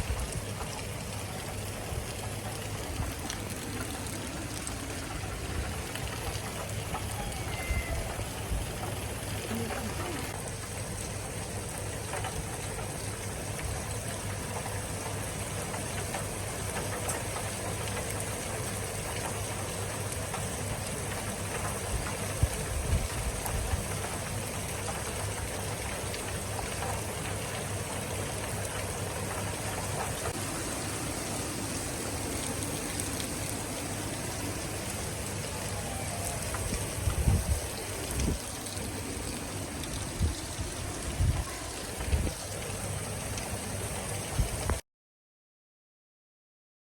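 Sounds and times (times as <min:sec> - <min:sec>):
steady rain falling: 0:00.0 - 0:44.8.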